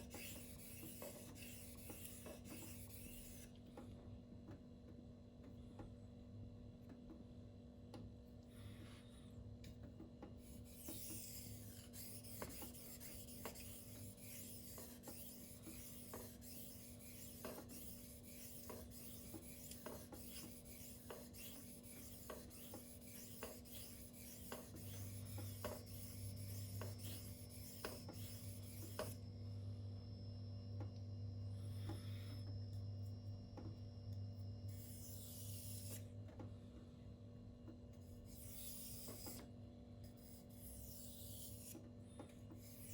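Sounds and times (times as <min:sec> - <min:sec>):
knife scraping on whetstone: 0:00.0 - 0:03.5, 0:10.4 - 0:29.2, 0:40.2 - 0:41.8, 0:42.6 - 0:42.9.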